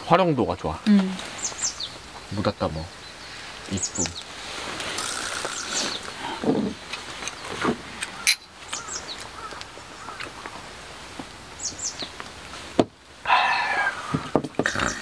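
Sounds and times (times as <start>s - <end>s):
outdoor background noise: 0.0s - 15.0s
bird chirping: 0.9s - 10.6s, 11.5s - 12.2s, 13.4s - 15.0s.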